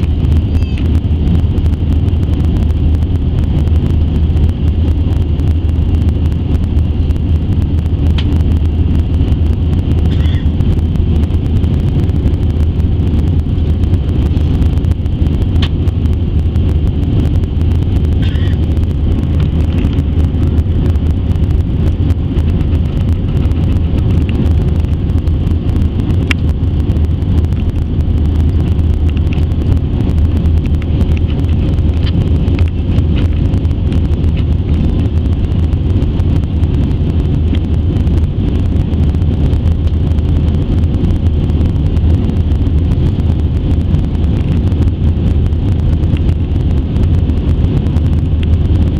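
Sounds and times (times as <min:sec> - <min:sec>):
faint high whine: 0:00.0 - 0:01.8
jet engine and airflow rumble: 0:00.0 - 0:48.9.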